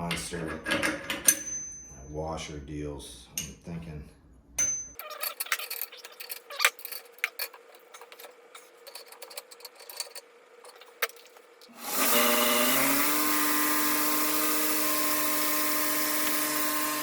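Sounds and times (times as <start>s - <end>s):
electric motor hum and whine: 6.1s - 17.0s.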